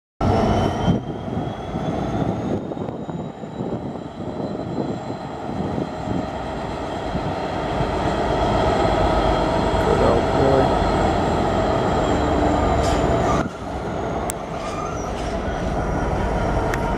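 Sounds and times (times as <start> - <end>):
diesel locomotive engine working hard: 0.2 - 16.9.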